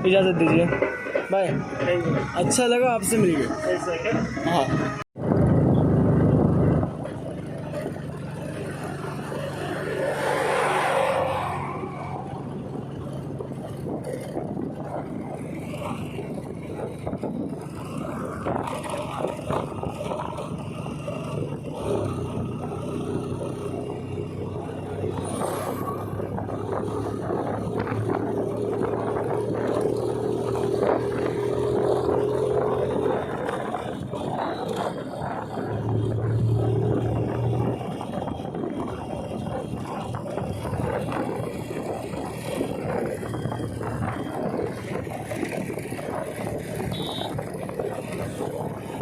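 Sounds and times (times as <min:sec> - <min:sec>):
road noise: 0:00.0 - 0:49.0
wind noise on microphone: 0:00.0 - 0:49.0
motorcycle engine running: 0:03.5 - 0:10.1, 0:12.2 - 0:49.0.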